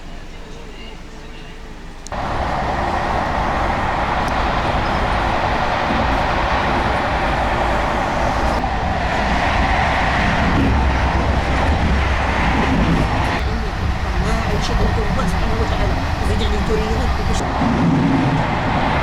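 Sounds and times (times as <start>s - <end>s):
passenger train rumbling: 0.0s - 19.0s.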